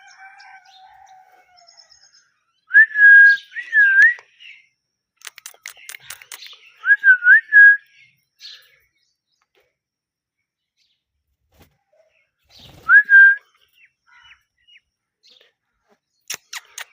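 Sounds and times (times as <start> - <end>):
parrot clicks and chatter: 5.2 - 6.6, 16.2 - 16.9.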